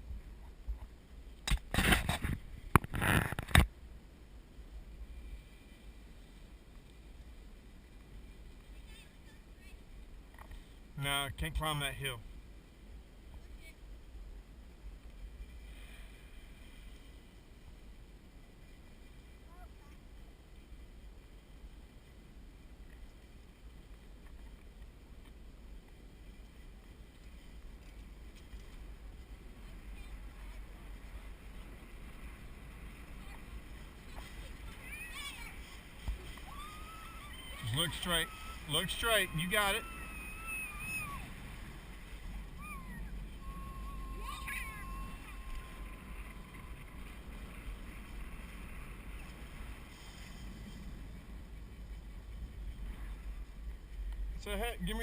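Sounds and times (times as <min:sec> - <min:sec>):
wind buffeting microphone: 0:17.7 - 0:55.0
faint voice: 0:42.6 - 0:46.2.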